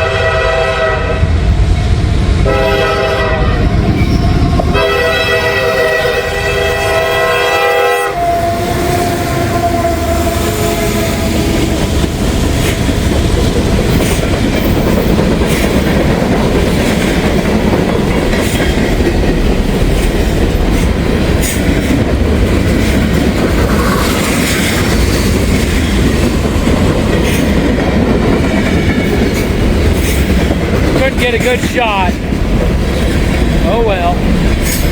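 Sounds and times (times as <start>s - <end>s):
train horn: 0.0s - 1.4s, 2.4s - 3.8s, 4.7s - 11.7s
train cars rumbling past: 0.0s - 34.9s
wheels clicking and clacking: 11.6s - 33.6s.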